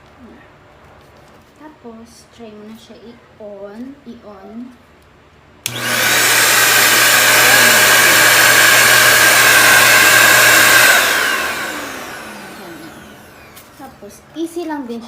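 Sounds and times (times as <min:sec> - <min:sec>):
vacuum cleaner running: 0:05.6 - 0:14.1
motor spinning down: 0:05.7 - 0:13.6.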